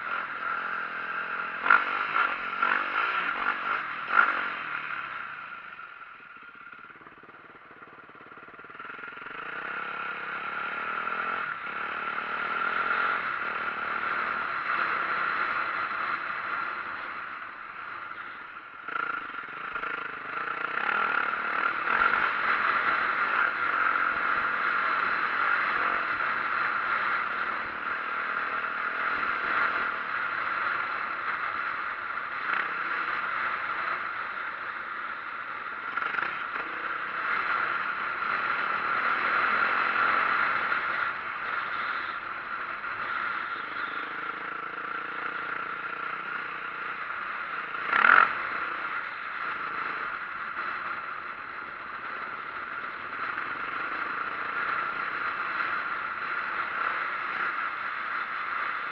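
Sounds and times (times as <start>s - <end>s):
dirt bike engine running: 0.0s - 58.9s.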